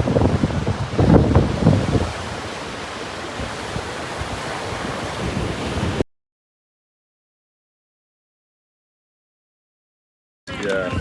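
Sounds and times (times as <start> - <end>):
sea surf washing on shore: 0.0 - 6.0
wind buffeting microphone: 0.0 - 6.0.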